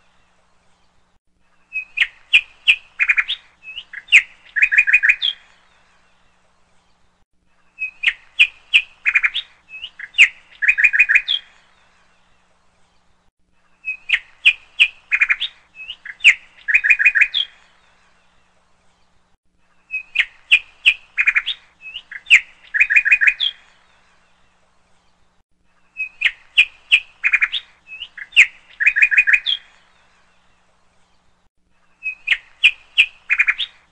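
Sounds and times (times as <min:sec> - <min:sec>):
bird chirping and twittering: 0:00.0 - 0:19.2, 0:19.8 - 0:33.9.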